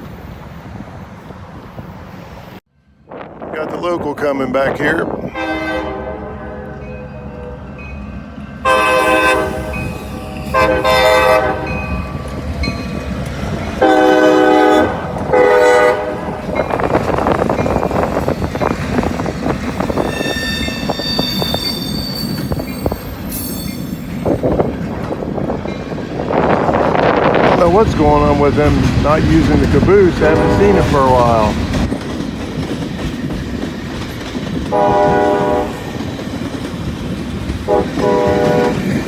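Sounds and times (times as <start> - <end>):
train wheels rumbling on rails: 0.0 - 39.0
locomotive horn blasts: 5.2 - 7.7, 8.6 - 12.1, 13.8 - 16.5, 34.7 - 35.8, 37.7 - 38.9
high wheel squeal: 19.8 - 24.6.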